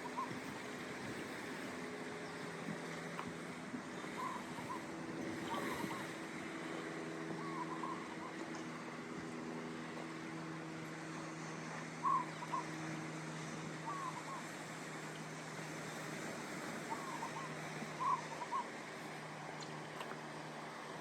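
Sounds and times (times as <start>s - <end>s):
low engine hum: 0.0s - 21.0s
short bird calls: 16.9s - 18.7s.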